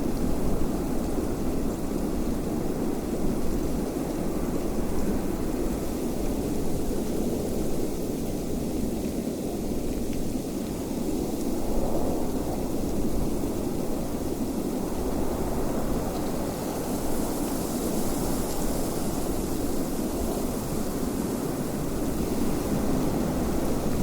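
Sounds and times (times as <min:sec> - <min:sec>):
wind blowing: 0:11.0 - 0:24.0.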